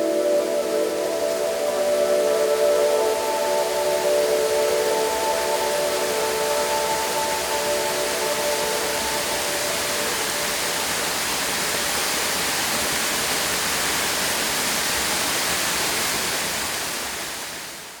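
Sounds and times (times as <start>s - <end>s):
background music: 0.0s - 11.2s
waterfall rushing: 0.0s - 18.0s.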